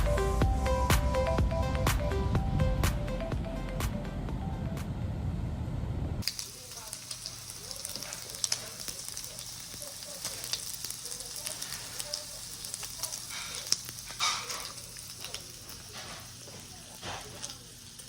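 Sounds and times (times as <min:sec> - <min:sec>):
meat sizzling in a hot pan: 0:06.2 - 0:18.0.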